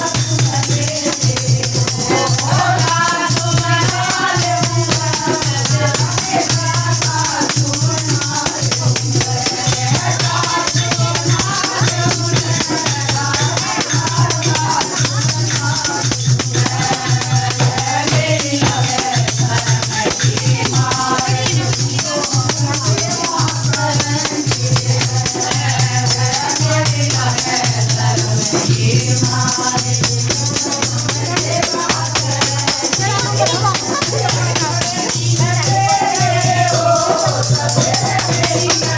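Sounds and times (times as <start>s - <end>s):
jingling percussion: 0.0s - 38.9s
voices singing a devotional chant: 0.0s - 38.9s
low drum beat: 31.0s - 38.7s.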